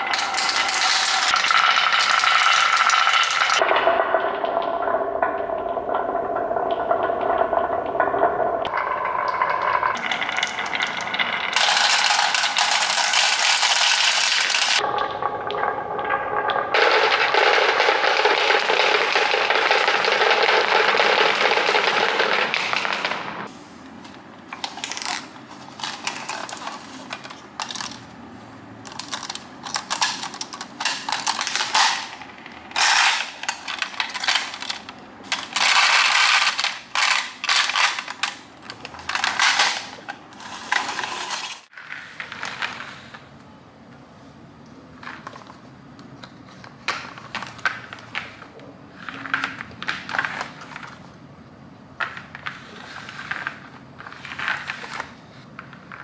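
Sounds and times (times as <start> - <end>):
marbles clattering on a marble run: 0.0 - 4.5, 7.2 - 14.9, 16.7 - 23.5, 28.8 - 42.8.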